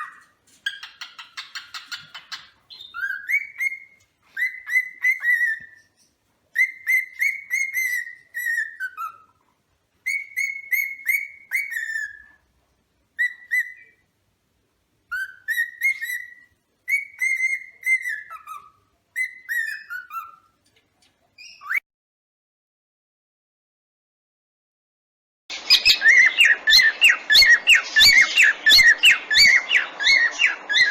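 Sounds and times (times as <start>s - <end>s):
cockatiel whistling: 0.0s - 6.0s, 6.6s - 9.4s, 10.0s - 12.4s, 13.2s - 14.0s, 15.1s - 20.6s, 21.4s - 21.8s, 25.5s - 30.9s.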